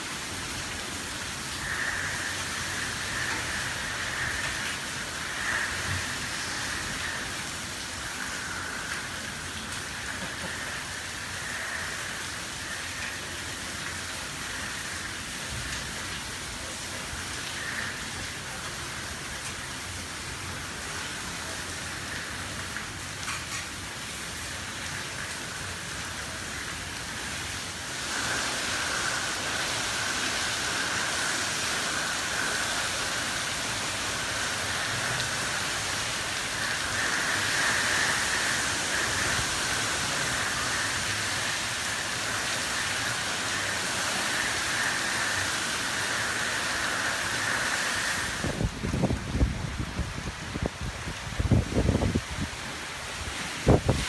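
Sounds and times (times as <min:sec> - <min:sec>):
heavy wind-driven rain: 0:00.0 - 0:54.0.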